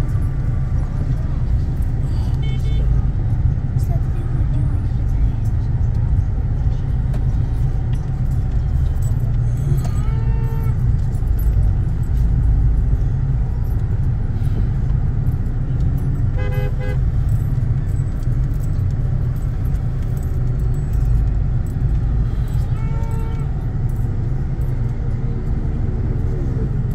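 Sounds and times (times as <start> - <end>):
traffic rumble: 0.0 - 26.9
car horn toot: 2.4 - 3.0, 9.8 - 10.8, 16.3 - 17.3, 22.5 - 23.6.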